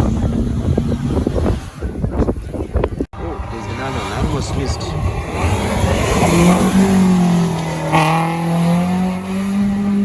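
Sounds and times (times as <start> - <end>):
rally car engine accelerating: 3.2 - 10.0.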